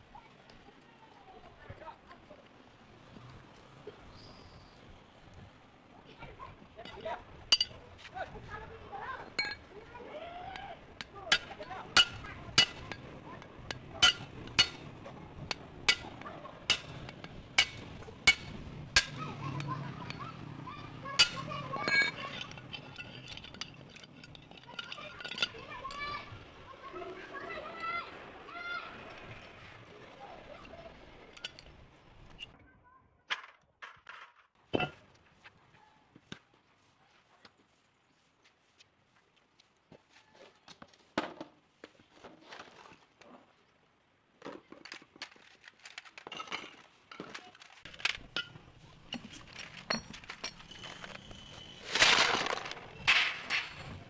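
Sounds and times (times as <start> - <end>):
metal tools tapping and clinking: 6.8 - 8.0, 9.3 - 9.7, 10.5 - 26.4, 30.6 - 32.5, 33.3 - 35.0, 44.5 - 54.0.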